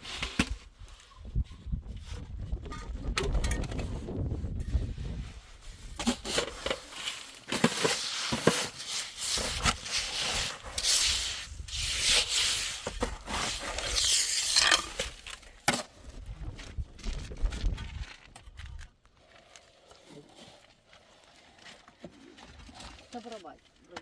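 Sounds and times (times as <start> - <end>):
scraping and rubbing on hard surface: 4.6 - 15.4.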